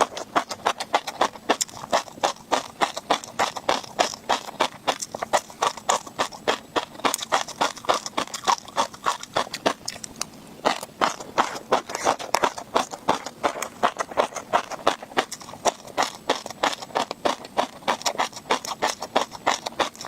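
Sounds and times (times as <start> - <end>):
chewing crunchy fish roe: 0.0 - 20.0.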